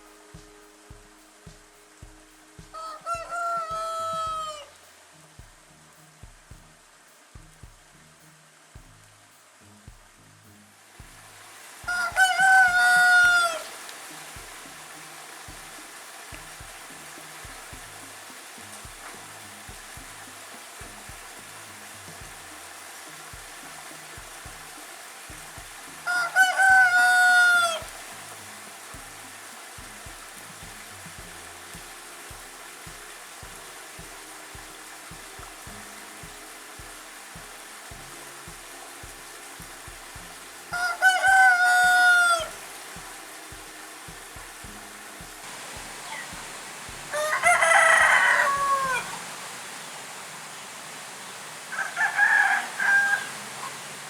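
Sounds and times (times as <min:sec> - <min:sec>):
steady hiss: 0:00.0 - 0:54.0
soft low thumps: 0:00.4 - 0:04.5, 0:05.4 - 0:11.5, 0:14.4 - 0:26.0, 0:28.9 - 0:40.6, 0:42.6 - 0:47.1
rooster crowing: 0:02.7 - 0:04.8, 0:11.8 - 0:13.9, 0:26.0 - 0:28.0, 0:40.7 - 0:42.6, 0:47.1 - 0:49.4, 0:51.7 - 0:53.9.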